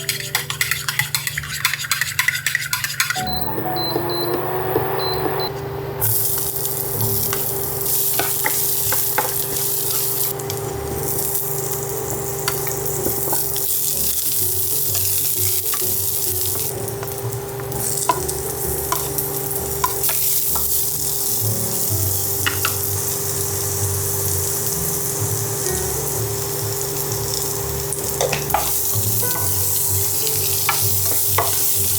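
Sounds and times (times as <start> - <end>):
utensil scraping a pan: 0.0 - 3.2
food sizzling in a pan: 3.3 - 5.4, 6.0 - 31.9.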